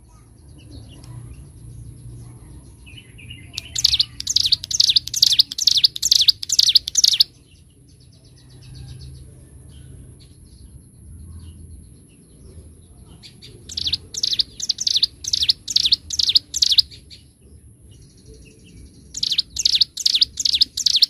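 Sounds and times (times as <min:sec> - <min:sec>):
faint bird chirps: 0:00.0 - 0:21.0
bird singing rapid high notes: 0:02.9 - 0:07.4, 0:13.6 - 0:17.2, 0:18.9 - 0:21.0.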